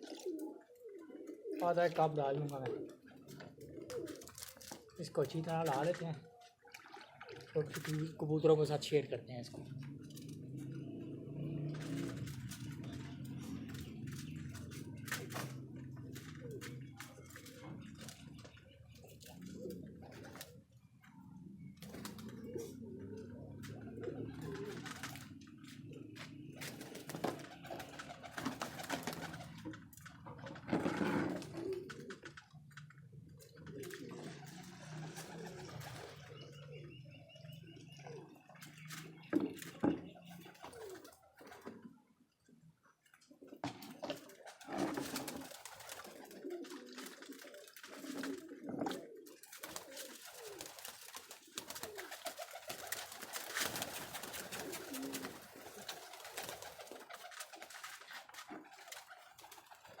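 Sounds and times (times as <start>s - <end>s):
pigeons cooing: 0.0s - 60.0s.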